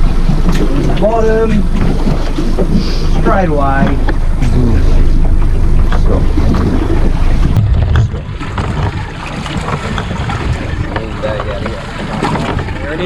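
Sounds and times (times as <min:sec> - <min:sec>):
sea around a boat: 0:00.0 - 0:13.0
wind buffeting microphone: 0:00.0 - 0:13.0.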